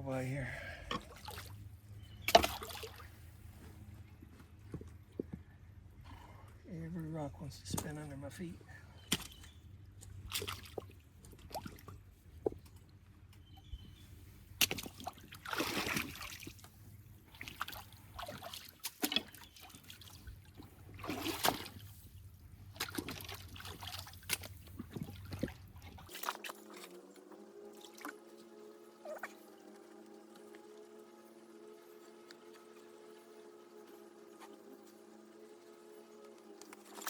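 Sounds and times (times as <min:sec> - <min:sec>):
water splashing: 0:02.3 - 0:03.1, 0:14.6 - 0:16.7, 0:17.3 - 0:22.0, 0:22.7 - 0:27.0, 0:36.6 - 0:37.0.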